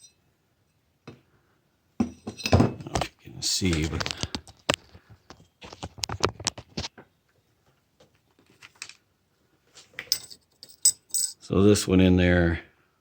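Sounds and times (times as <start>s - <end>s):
small metal parts clinking: 10.0s - 11.5s.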